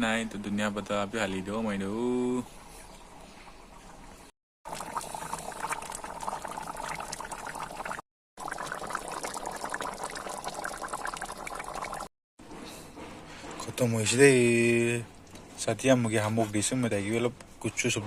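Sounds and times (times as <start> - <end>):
curry bubbling and popping: 4.7 - 12.1.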